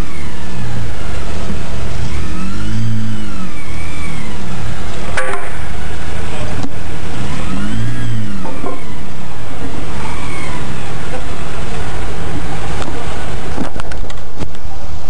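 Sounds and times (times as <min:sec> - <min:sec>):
car engine revving: 0:00.0 - 0:14.4
sharp knocks: 0:05.2 - 0:05.8.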